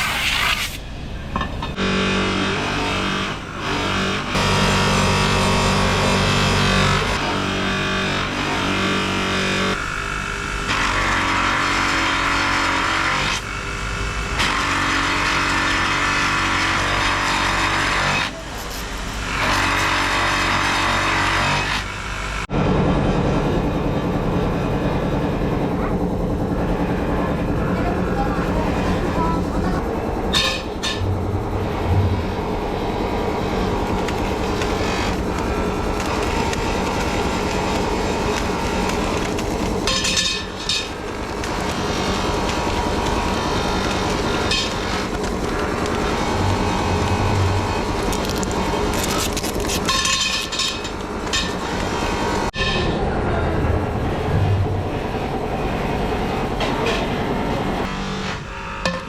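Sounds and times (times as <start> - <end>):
factory machinery running: 0.8 - 59.0
motor humming: 1.7 - 22.5, 23.9 - 52.6
metal grinding: 28.4 - 53.0.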